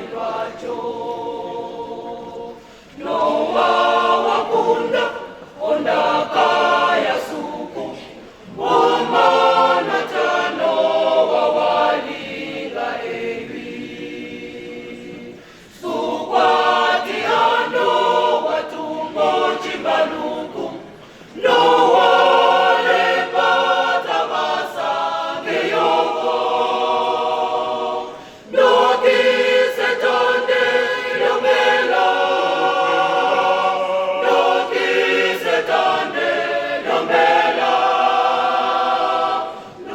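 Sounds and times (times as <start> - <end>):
choir singing unaccompanied: 0.0 - 39.9.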